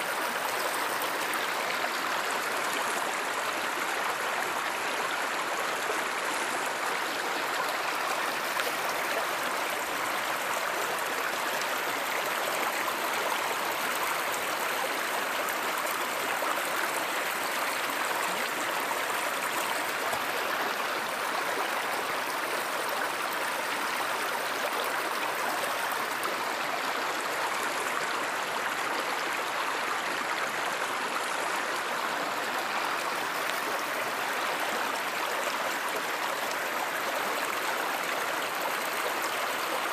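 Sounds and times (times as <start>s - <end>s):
stream water rushing and burbling: 0.0s - 39.9s.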